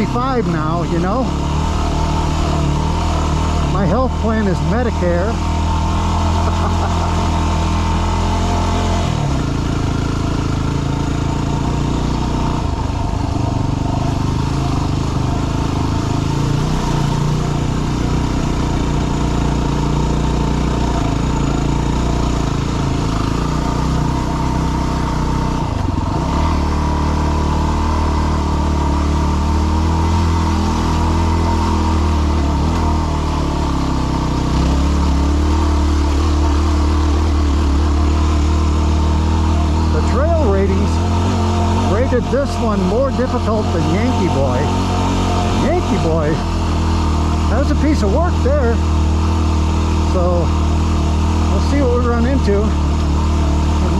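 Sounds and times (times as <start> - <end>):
motorcycle engine under load: 0.0 - 53.9.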